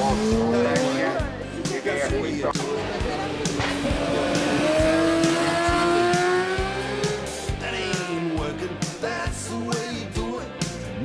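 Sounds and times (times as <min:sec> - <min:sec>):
motorcycle engine revving high: 0:00.0 - 0:01.3, 0:02.7 - 0:08.9
music with a steady beat: 0:00.0 - 0:11.0.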